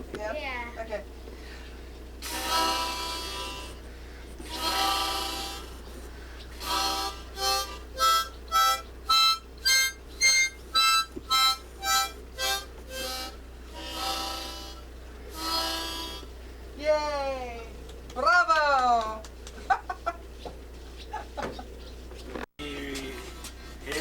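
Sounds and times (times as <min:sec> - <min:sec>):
harmonica playing a tune: 0:02.2 - 0:16.4.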